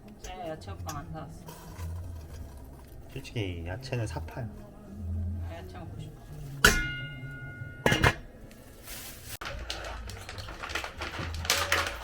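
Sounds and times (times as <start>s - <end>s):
kitchenware clattering: 6.6s - 8.4s.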